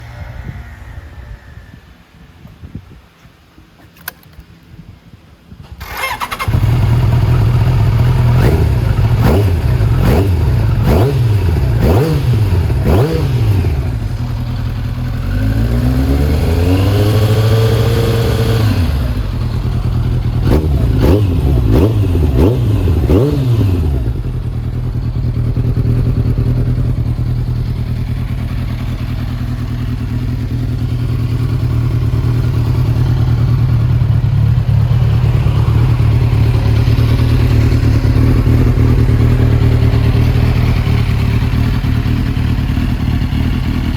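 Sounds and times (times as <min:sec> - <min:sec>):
motorcycle engine revving: 0:05.8 - 0:43.9.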